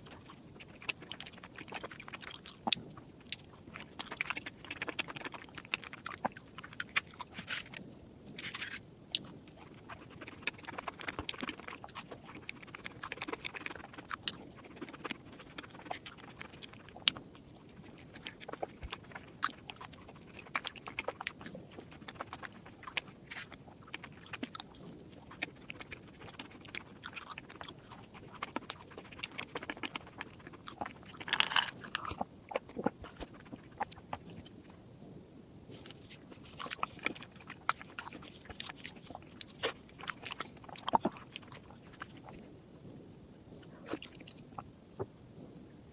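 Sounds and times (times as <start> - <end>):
person chewing crunchy food: 0.0 - 34.9, 35.7 - 45.9.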